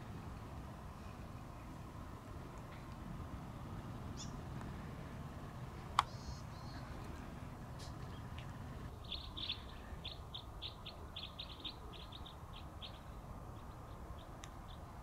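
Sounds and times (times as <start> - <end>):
bird chirping: 4.1 - 4.6, 5.7 - 15.0.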